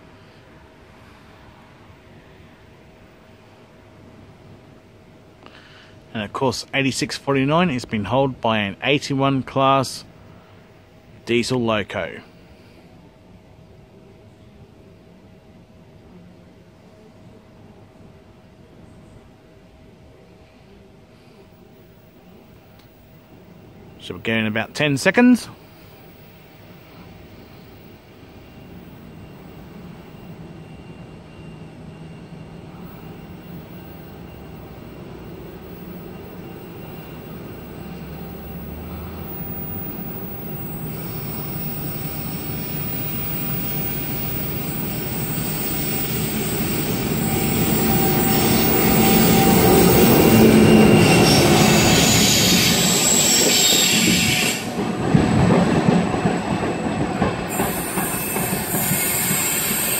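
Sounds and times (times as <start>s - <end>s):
diesel locomotive engine: 19.8s - 59.9s
train wheels on rails: 25.2s - 59.9s.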